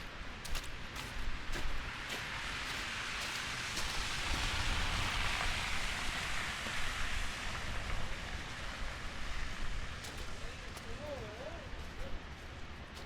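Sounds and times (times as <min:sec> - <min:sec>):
rushing hiss: 0:02.1 - 0:12.0.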